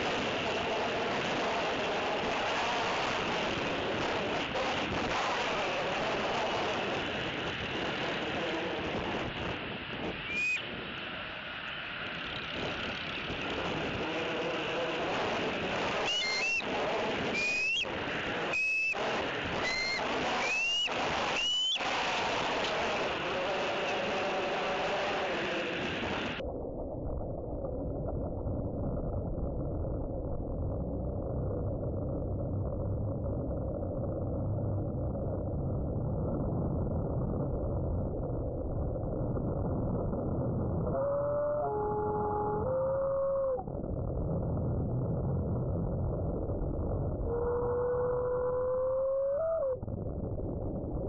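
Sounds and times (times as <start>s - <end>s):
wind on microphone: 0.0s - 11.3s, 12.0s - 26.4s, 27.3s - 51.0s
short high whistled note: 10.3s - 10.6s, 16.1s - 16.6s, 17.3s - 17.9s, 18.5s - 19.0s, 19.6s - 21.8s.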